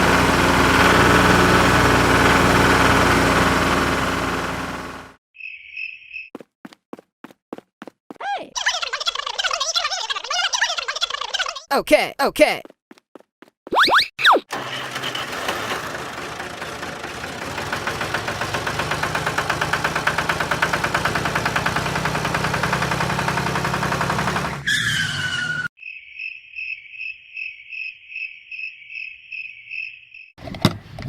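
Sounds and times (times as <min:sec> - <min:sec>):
small motor running: 0:00.0 - 0:05.2, 0:14.5 - 0:24.6.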